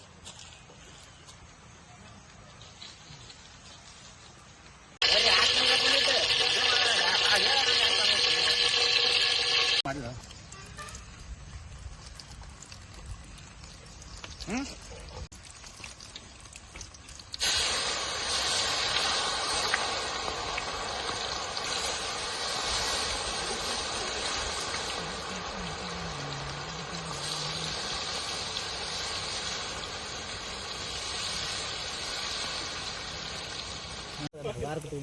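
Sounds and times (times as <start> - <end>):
chicken sizzling in hot oil: 5.0 - 35.0.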